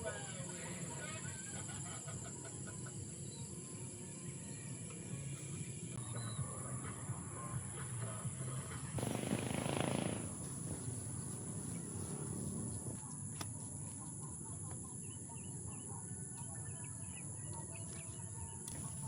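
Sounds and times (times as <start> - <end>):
small birds chirping: 9.0 - 13.0
steady high hiss: 9.0 - 13.0.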